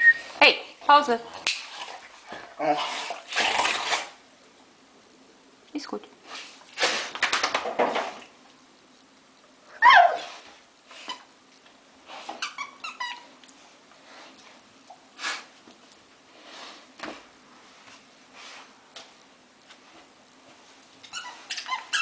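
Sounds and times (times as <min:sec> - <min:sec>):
rustles and knocks: 0:07.2 - 0:08.3
squeaky dog toy squeaking: 0:12.4 - 0:13.2.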